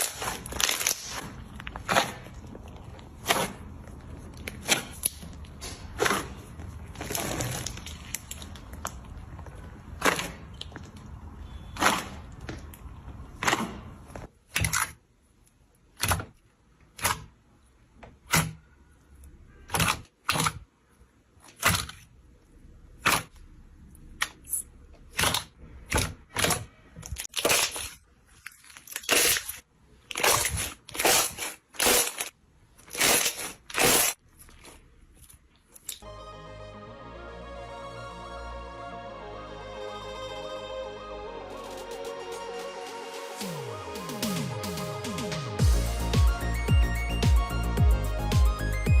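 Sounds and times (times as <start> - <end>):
slime crunchy crackles: 0.0 - 12.7, 26.3 - 34.8.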